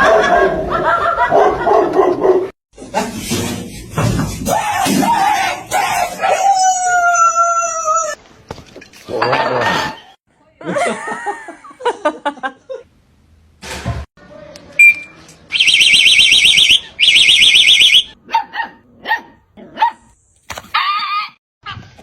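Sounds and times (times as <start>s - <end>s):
dog barking: 0.0s - 0.6s, 1.2s - 2.5s, 18.2s - 20.1s.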